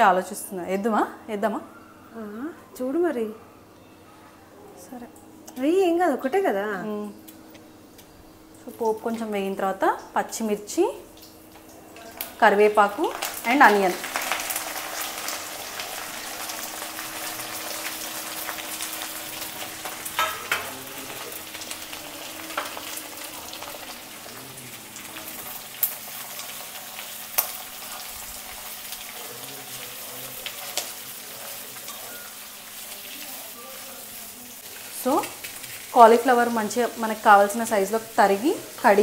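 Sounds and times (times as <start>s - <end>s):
food sizzling in hot oil: 8.4s - 39.0s.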